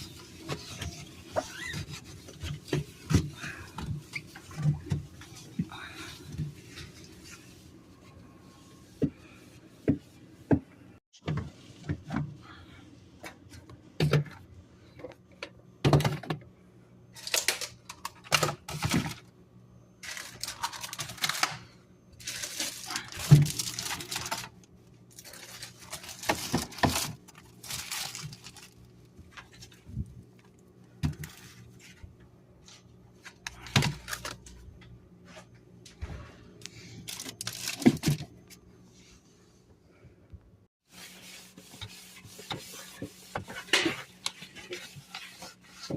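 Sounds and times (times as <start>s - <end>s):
items knocking and clattering: 15.8s - 16.4s, 25.6s - 28.6s, 37.2s - 38.4s.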